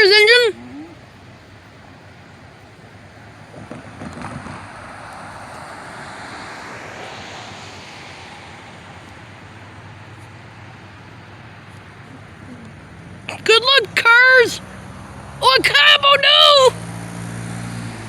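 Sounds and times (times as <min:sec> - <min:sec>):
train passing at speed: 0:01.8 - 0:12.0.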